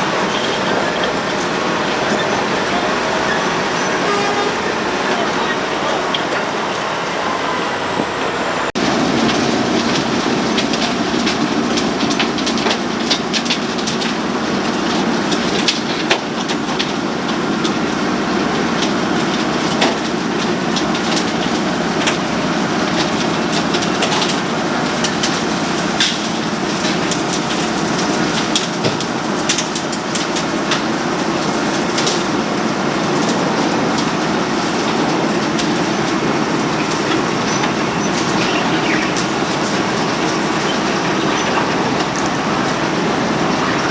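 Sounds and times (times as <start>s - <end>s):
road planer grinding: 0.0s - 43.9s.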